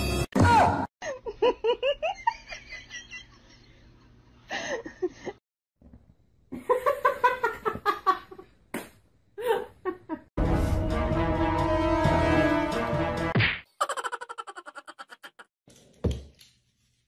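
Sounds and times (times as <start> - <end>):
person laughing: 9.4 - 10.3, 13.8 - 15.5.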